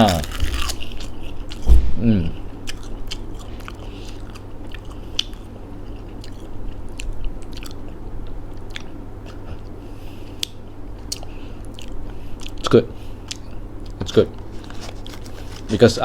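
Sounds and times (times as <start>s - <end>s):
person chewing crisp seaweed snack: 0.0s - 1.7s, 2.6s - 9.4s, 10.4s - 15.8s.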